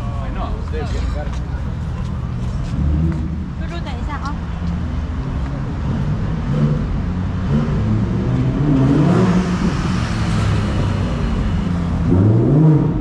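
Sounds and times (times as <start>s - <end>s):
sports car engine driving past: 4.4s - 13.0s.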